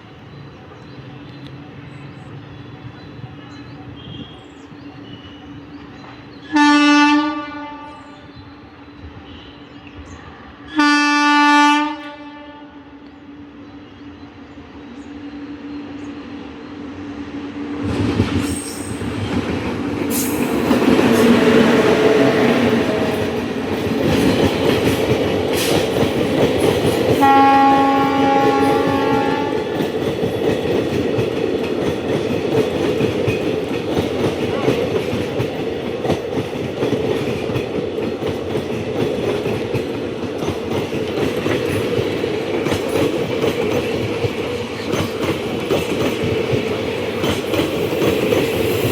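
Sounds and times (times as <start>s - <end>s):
train passing: 0.0s - 48.9s
train horn: 6.4s - 8.3s, 10.7s - 13.0s, 27.2s - 29.9s.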